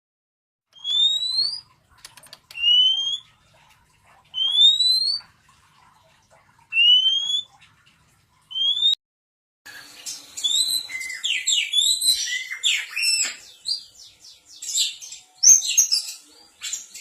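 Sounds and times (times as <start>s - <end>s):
bird whistling: 0.8s - 1.6s, 2.5s - 3.3s, 4.4s - 5.2s, 6.7s - 7.5s, 8.5s - 9.0s, 10.4s - 13.8s.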